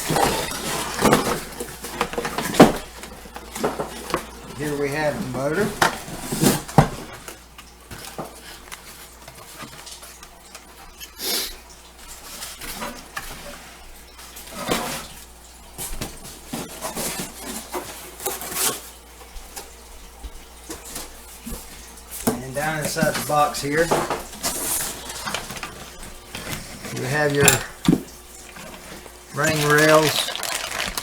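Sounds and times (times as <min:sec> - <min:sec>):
packaging rustling: 0:28.6 - 0:31.0.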